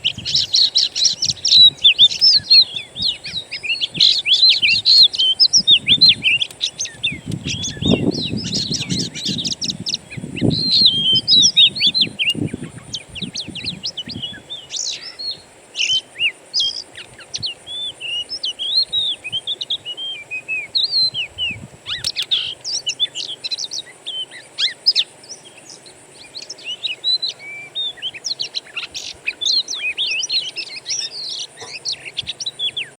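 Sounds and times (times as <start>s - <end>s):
songbirds chirping and twittering: 0.0s - 32.9s.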